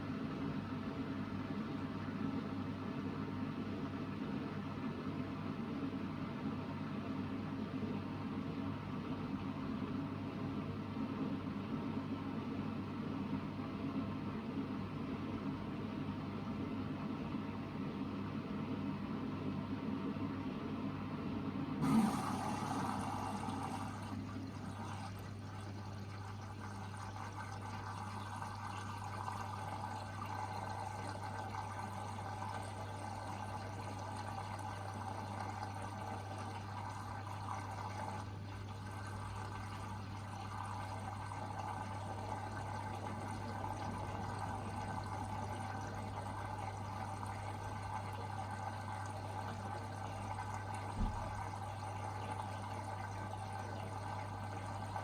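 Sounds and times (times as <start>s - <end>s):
water rushing into washing machine: 21.8s - 55.0s.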